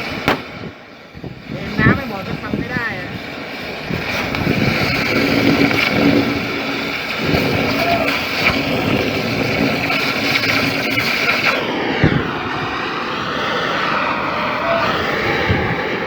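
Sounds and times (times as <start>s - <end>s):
loud machinery noise: 0.0s - 16.0s.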